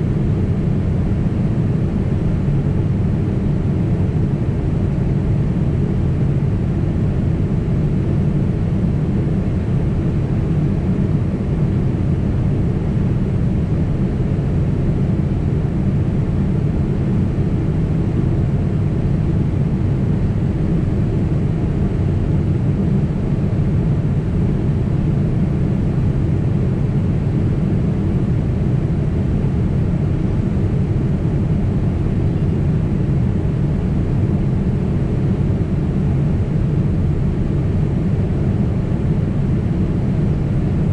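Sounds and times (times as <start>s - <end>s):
airliner cabin engine rumble: 0.0s - 40.9s.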